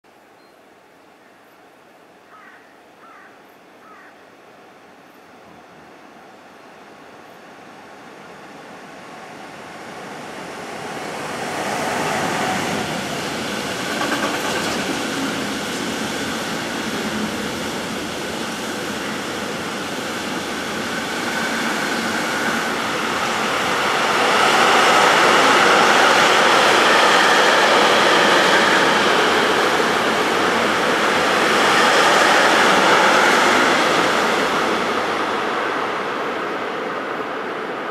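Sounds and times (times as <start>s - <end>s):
wheels rushing on rail: 7.5s - 37.9s.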